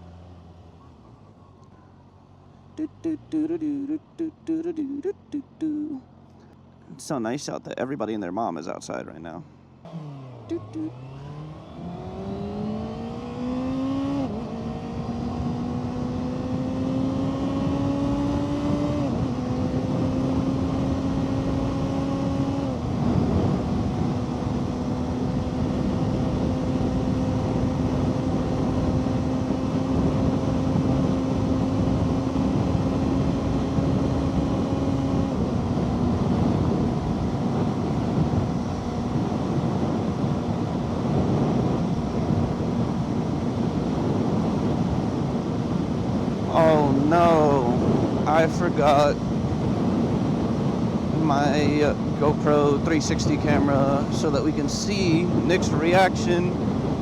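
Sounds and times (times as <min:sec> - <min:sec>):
motorcycle engine accelerating: 0:09.7 - 0:57.0
wind on microphone: 0:11.8 - 0:57.0.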